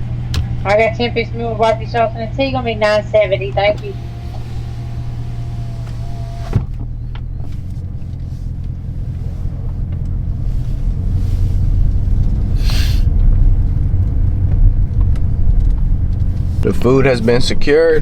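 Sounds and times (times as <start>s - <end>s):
car exhaust rumble: 0.0s - 18.0s
brief hiss: 12.6s - 13.1s.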